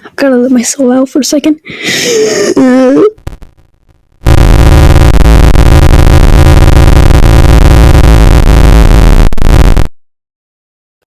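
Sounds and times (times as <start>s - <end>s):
distorted electronic noise blast: 3.2s - 10.0s.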